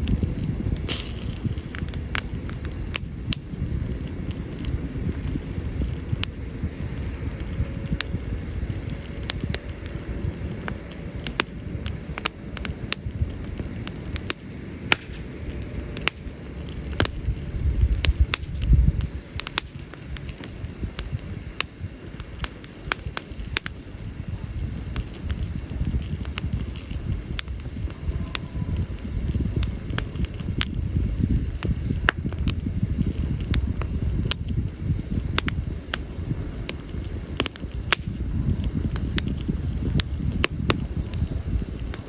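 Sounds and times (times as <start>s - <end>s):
low rumble: 0.0s - 10.8s
campfire crackling and popping: 0.0s - 42.0s.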